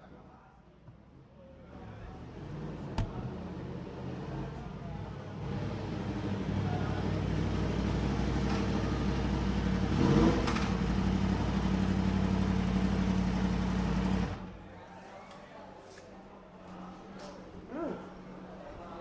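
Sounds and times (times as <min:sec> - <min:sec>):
engine passing by: 0:05.4 - 0:14.5
motorcycle engine running: 0:05.5 - 0:14.5.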